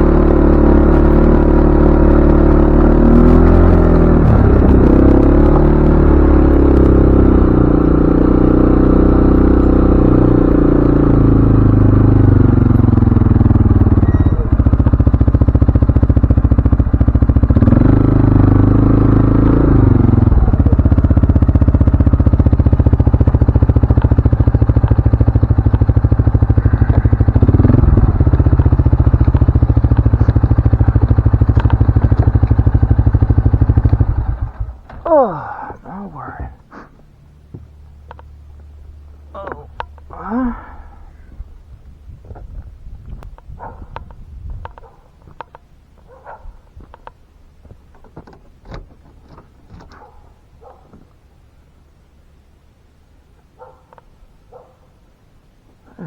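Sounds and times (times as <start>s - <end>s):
atv engine revving: 0.0s - 47.2s.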